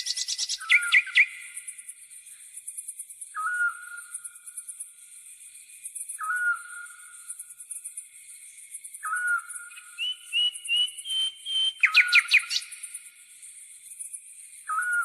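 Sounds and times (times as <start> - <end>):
insect trilling: 0.0 - 1.3
whistled bird call: 0.0 - 1.5, 3.4 - 4.1, 6.2 - 6.9, 9.0 - 12.7, 14.7 - 15.0.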